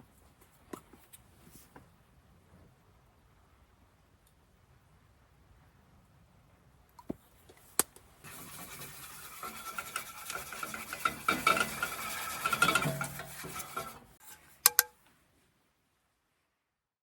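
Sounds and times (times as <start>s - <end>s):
utensil stirring food in pan: 8.2s - 14.9s.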